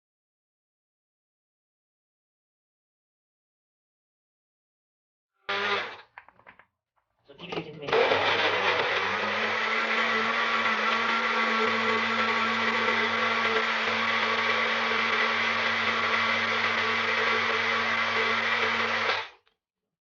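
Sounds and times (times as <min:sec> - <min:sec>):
personal blender running: 0:05.5 - 0:06.0, 0:07.9 - 0:19.4.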